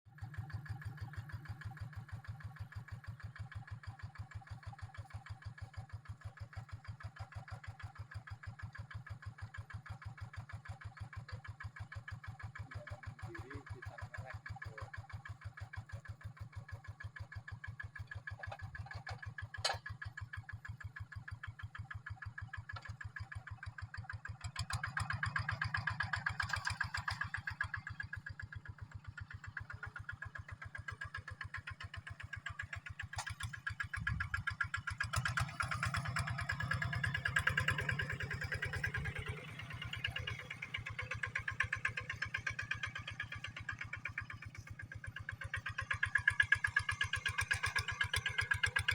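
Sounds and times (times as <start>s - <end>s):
tractor diesel engine chugging: 0.1s - 48.9s.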